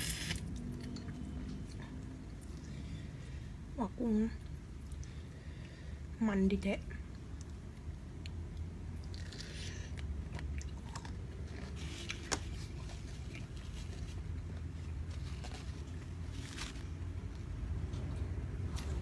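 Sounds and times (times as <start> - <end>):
steady low hum: 0.0 - 19.0
person chewing shrimp head: 7.1 - 15.1.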